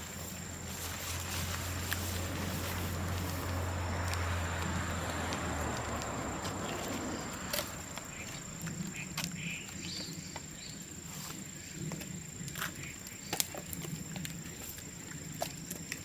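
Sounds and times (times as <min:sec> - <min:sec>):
bamboo crackling and popping in bonfire: 0:00.0 - 0:16.0.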